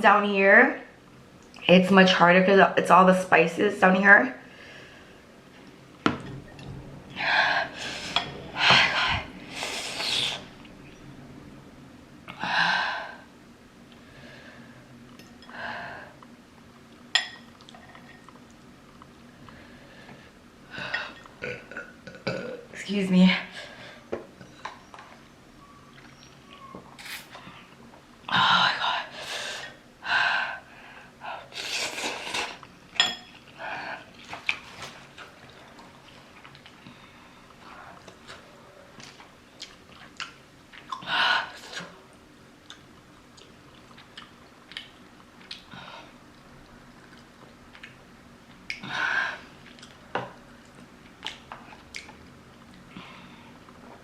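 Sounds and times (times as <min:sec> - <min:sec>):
utensils clinking against a bowl: 0:17.1 - 0:18.4, 0:32.9 - 0:33.5.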